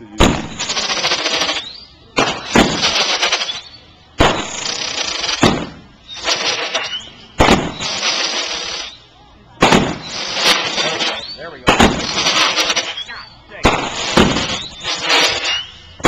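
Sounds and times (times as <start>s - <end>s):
fireworks bangs: 0.0s - 16.0s
fireworks crackling hiss: 0.0s - 16.0s.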